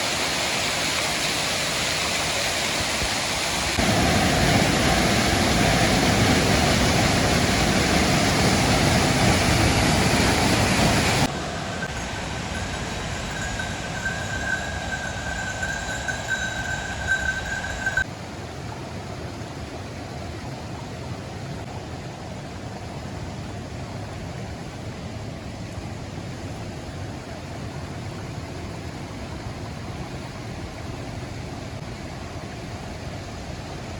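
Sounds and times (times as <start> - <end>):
waterfall rushing: 0.0 - 18.0
high thin tone: 11.2 - 18.0.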